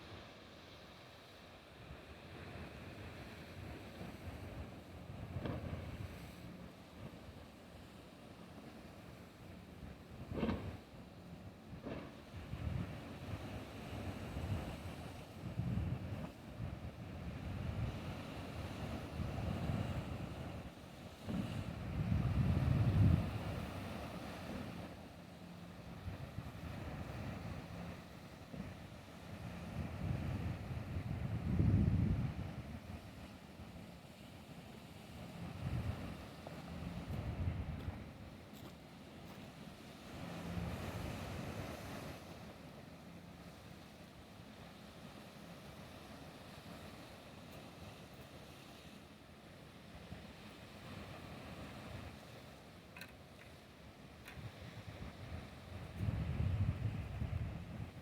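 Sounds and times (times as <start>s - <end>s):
motorboat engine rumble: 0.0s - 58.0s
wind buffeting microphone: 11.7s - 20.7s, 21.3s - 24.8s, 25.8s - 33.2s, 35.5s - 38.1s, 54.3s - 58.0s.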